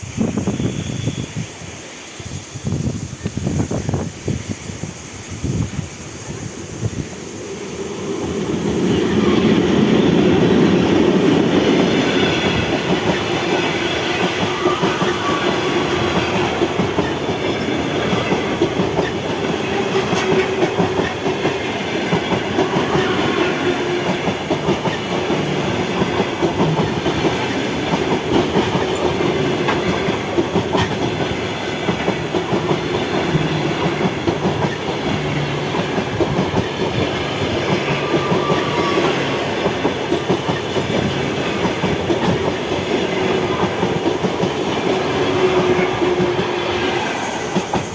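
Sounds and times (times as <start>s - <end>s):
train passing close by: 0.0s - 47.9s
wheels clicking over rail joints: 8.6s - 46.5s.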